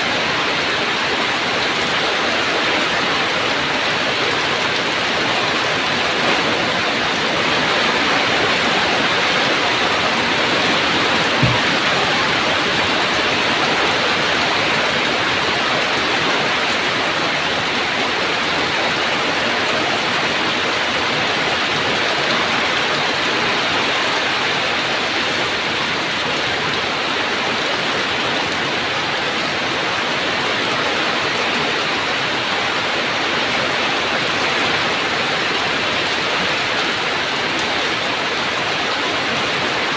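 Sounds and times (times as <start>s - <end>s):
heavy rain: 0.0s - 39.9s
dull thump: 11.4s - 12.0s.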